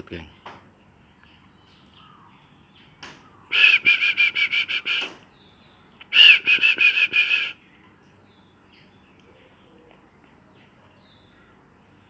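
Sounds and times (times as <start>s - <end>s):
dove cooing: 3.5s - 5.1s, 6.0s - 7.6s.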